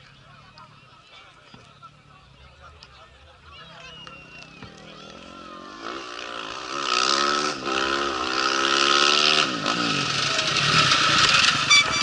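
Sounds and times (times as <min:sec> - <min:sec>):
motorcycle accelerating past: 0:05.0 - 0:12.0.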